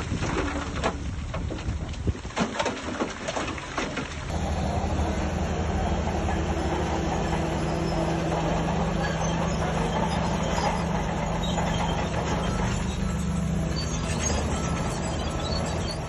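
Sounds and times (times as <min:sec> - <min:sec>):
metallic rattle and clatter: 0:02.4 - 0:16.0
diesel earthmoving machine engine: 0:04.1 - 0:16.0.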